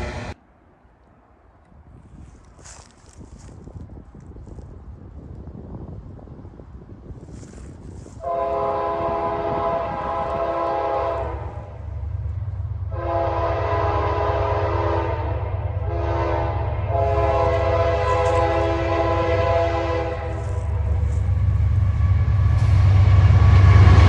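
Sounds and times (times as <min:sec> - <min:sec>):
train rumble: 0:00.0 - 0:24.0
locomotive air horn blasts: 0:08.2 - 0:11.8, 0:12.9 - 0:22.1.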